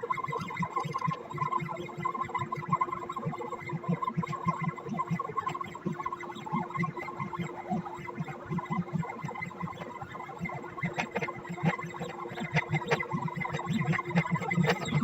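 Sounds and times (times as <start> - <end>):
stepper motors stuttering buzz: 13.9 - 15.0.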